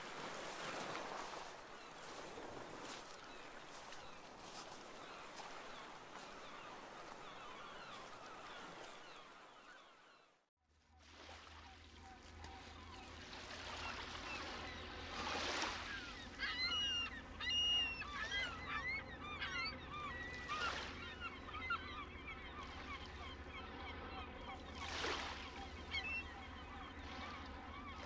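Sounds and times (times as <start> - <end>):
waves washing onto shore: 0.0 - 9.2
seabirds calling: 0.0 - 10.4, 11.2 - 28.0.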